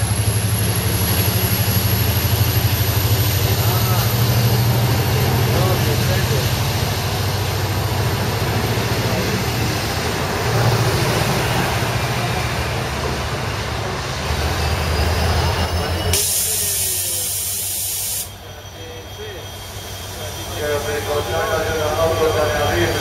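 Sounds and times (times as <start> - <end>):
train wheels rumbling on rails: 0.0 - 23.0
loud hiss of air: 16.1 - 18.5.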